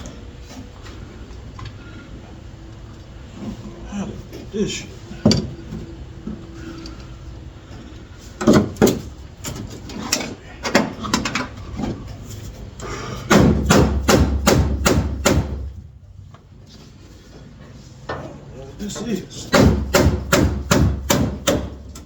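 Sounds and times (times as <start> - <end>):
hammer striking sheet metal: 13.3 - 15.6, 19.5 - 21.7.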